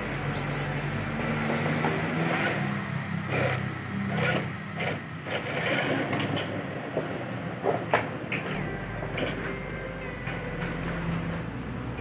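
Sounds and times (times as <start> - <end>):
toy motors whirring: 3.3 - 5.9.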